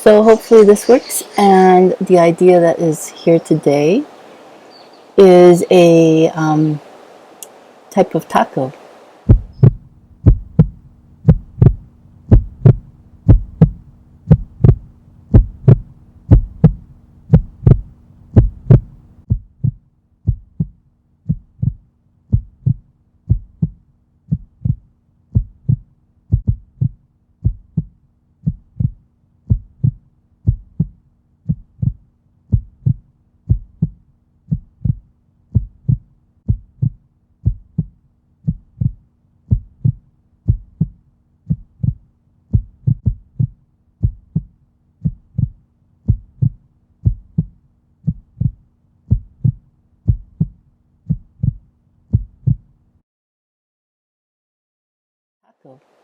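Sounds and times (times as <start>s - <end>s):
faint hum: 0.0s - 19.2s
low thumping beat: 9.3s - 52.6s.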